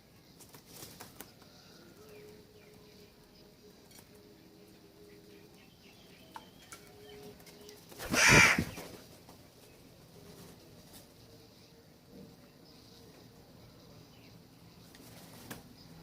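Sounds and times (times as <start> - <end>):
faint chirping of small birds: 0.0 - 16.0
crow cawing: 8.0 - 8.8.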